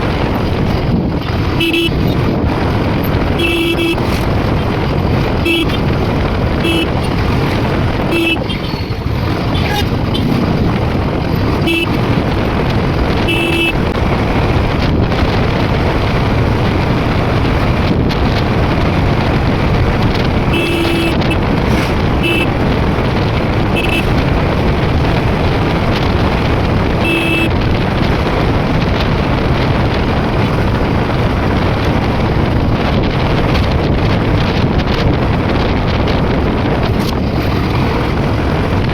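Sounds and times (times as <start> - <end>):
motorcycle engine and road noise: 0.0 - 38.9
wind rushing over microphone: 0.0 - 38.9
short horn beeps: 1.6 - 2.2, 3.4 - 4.2, 5.4 - 5.8, 6.6 - 7.1, 8.1 - 9.0, 11.6 - 12.0, 13.3 - 13.8, 20.5 - 21.4, 22.2 - 22.6, 23.7 - 24.2, 27.0 - 27.6.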